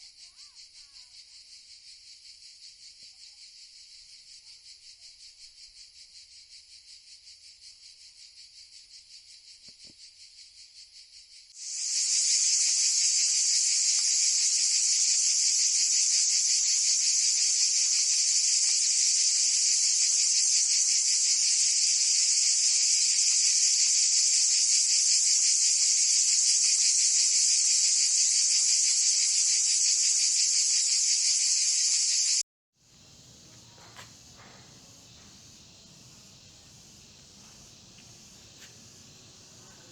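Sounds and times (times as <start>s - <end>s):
high-pitched insect chirring: 11.6s - 32.4s.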